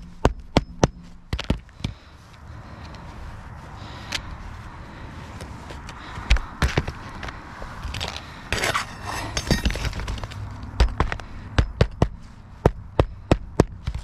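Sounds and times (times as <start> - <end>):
rustling scrape: 7.8 - 10.6.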